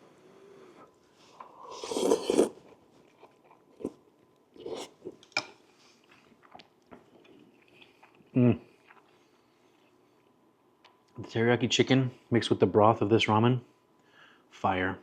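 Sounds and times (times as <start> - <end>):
noodles slurping: 1.7 - 2.8
chewing with wet smacks: 6.0 - 9.2.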